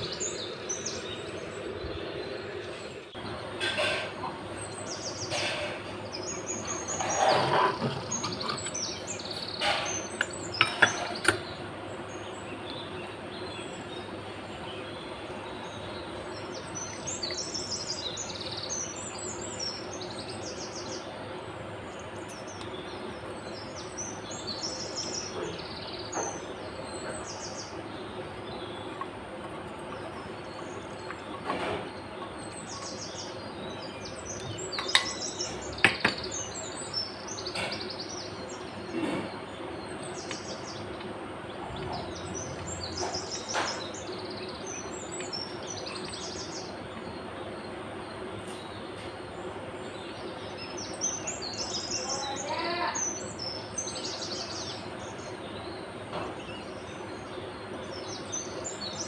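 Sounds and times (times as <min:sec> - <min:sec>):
small birds chirping: 0:00.0 - 0:59.0
steady background hiss: 0:00.0 - 0:59.0.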